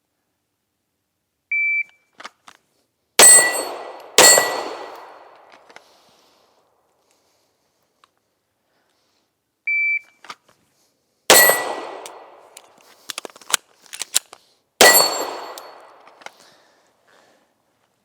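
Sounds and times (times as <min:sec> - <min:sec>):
handgun shots echoing: 0:03.2 - 0:05.7, 0:11.3 - 0:14.2, 0:14.8 - 0:16.2.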